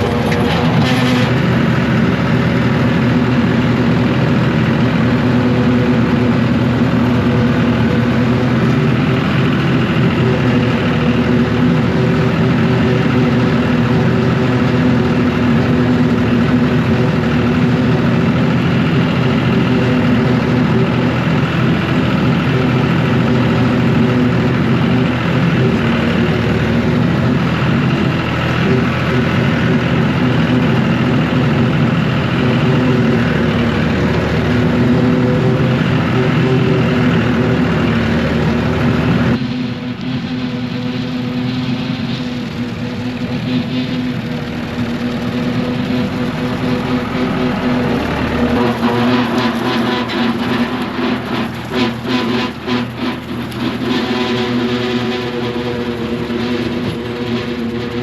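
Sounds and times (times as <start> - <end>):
tractor engine running: 0.0 - 58.0
rotary cutter: 44.8 - 58.0.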